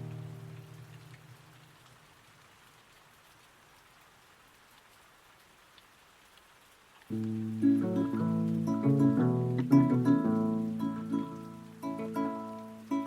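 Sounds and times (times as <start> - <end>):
rain patter: 0.0 - 13.0
guitar chord: 7.1 - 13.0.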